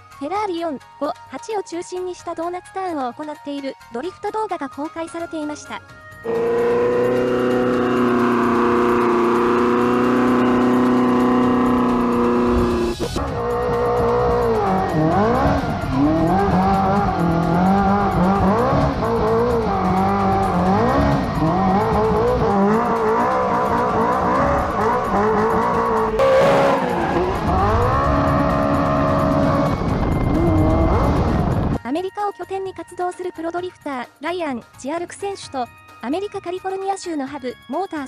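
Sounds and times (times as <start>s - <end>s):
car engine revving: 6.2s - 31.8s.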